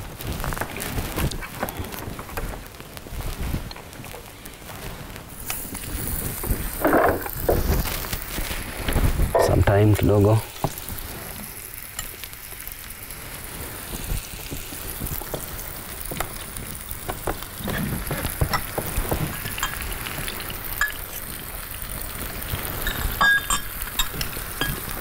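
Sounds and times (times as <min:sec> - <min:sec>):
chicken sizzling in a pan: 0:03.2 - 0:25.0
utensils clinking on dishes: 0:17.7 - 0:21.1, 0:22.7 - 0:25.0.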